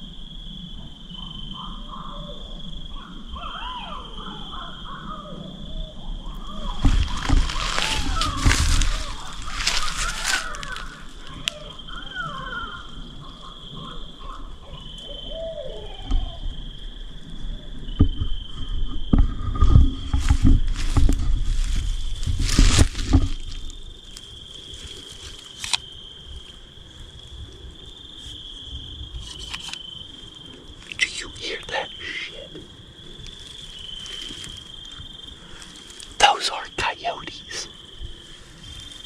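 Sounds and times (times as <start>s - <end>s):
insects trilling: 0.0s - 39.0s
faint wavering calls: 1.2s - 17.8s, 30.0s - 39.0s
close rustling and knocking: 6.8s - 11.0s, 18.0s - 25.8s.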